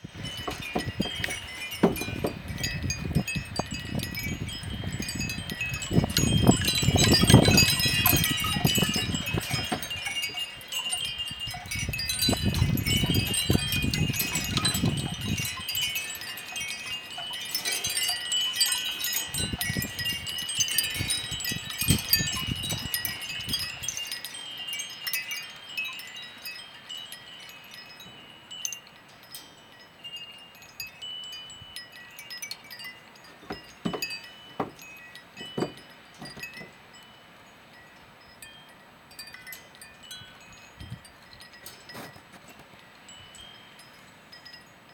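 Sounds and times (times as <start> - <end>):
wind buffeting microphone: 0.0 - 24.1
wind chimes jangling: 0.0 - 44.9.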